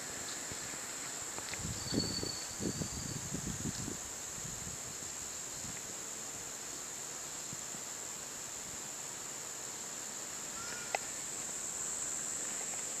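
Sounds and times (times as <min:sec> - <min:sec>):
insects buzzing: 0:00.0 - 0:13.0
bird chirp: 0:10.6 - 0:11.1.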